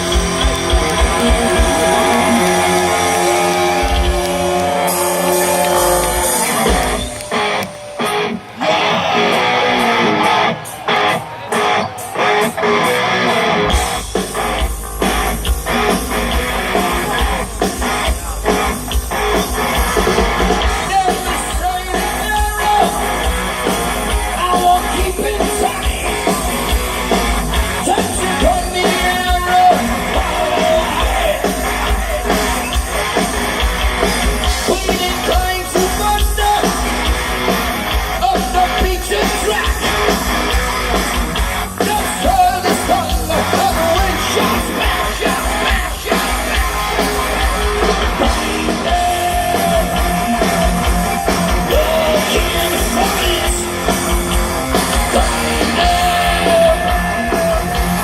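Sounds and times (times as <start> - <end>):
sung wails: 0.0 - 13.8
bass and drums: 0.0 - 58.0
distorted electric guitars: 0.0 - 58.0.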